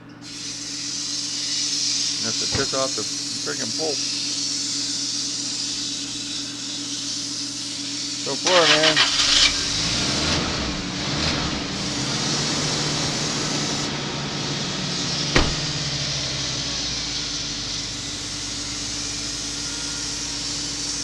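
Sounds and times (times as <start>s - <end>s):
tool cutting spinning wood: 0.3s - 13.9s, 15.2s - 21.0s
wood lathe humming: 9.6s - 21.0s
sharp knock: 15.4s - 16.0s.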